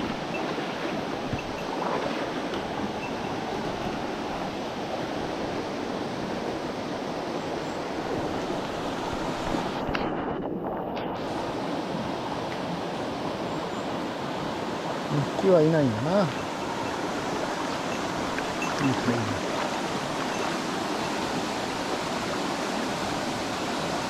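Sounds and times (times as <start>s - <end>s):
stream water rushing: 0.0s - 24.0s.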